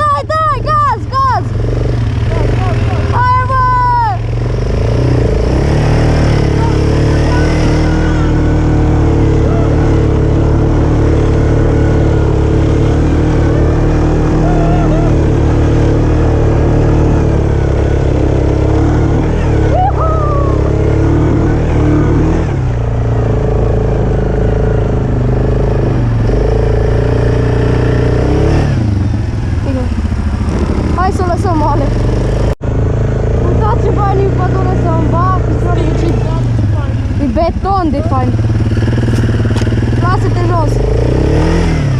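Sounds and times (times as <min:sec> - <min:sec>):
atv engine running: 0:00.0 - 0:41.9.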